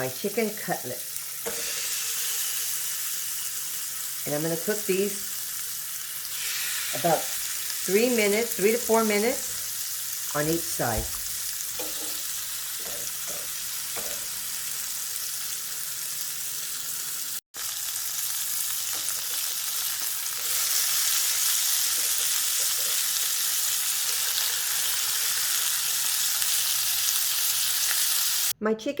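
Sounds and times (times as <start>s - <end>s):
meat sizzling in oil: 0.0s - 28.6s.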